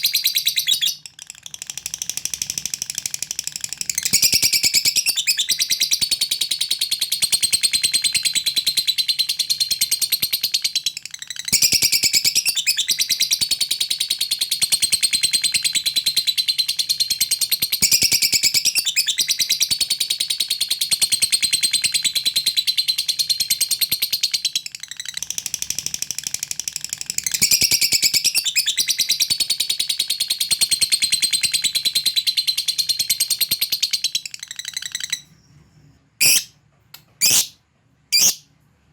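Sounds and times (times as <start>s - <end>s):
lovebird chattering trill: 36.2s - 36.5s, 37.2s - 38.4s.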